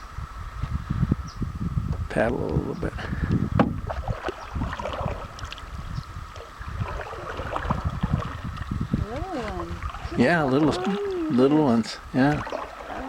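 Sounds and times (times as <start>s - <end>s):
low wind rumble on microphone: 0.0s - 13.0s
knocks against canoe hull: 3.5s - 4.3s
paddle strokes and splashes: 3.6s - 13.0s.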